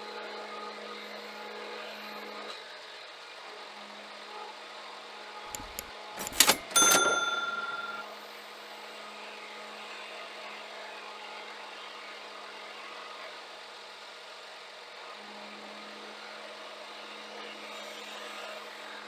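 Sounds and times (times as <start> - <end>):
metal clank ringing: 5.6 - 8.1.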